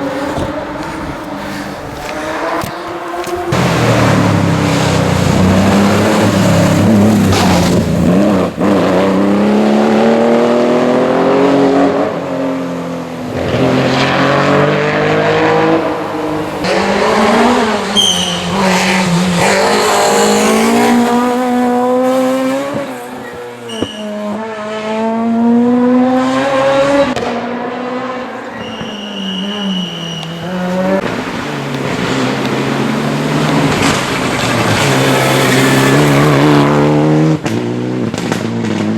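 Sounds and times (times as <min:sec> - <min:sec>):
rally car engine revving: 0:00.0 - 0:38.9
tyre squeals: 0:17.8 - 0:19.8, 0:22.1 - 0:24.3, 0:28.4 - 0:31.0.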